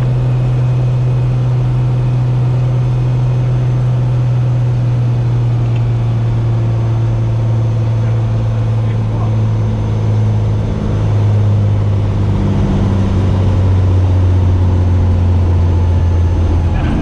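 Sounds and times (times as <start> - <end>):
piston engine and propeller droning: 0.0 - 17.0.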